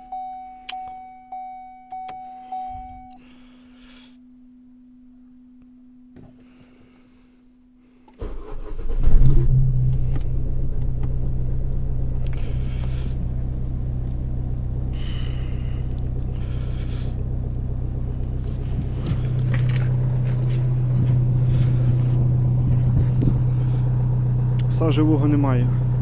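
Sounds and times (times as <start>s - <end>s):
diesel engine starting and idling: 8.2s - 26.0s.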